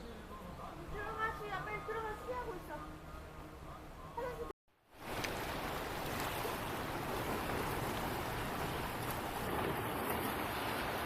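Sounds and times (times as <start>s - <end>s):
waves washing against rocks: 5.0s - 11.0s.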